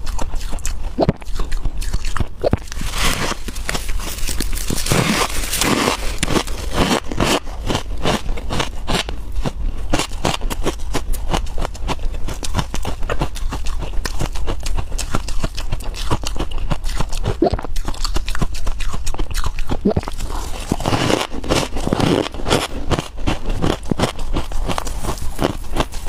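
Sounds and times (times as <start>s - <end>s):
frost being chewed crunching: 0.0s - 26.0s
steady low hum: 0.0s - 26.0s.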